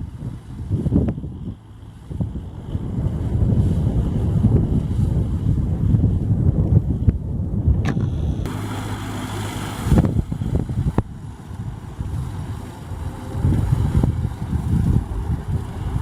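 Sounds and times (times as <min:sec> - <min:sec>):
wind buffeting microphone: 0:00.0 - 0:16.0
tractor diesel engine running: 0:07.9 - 0:16.0.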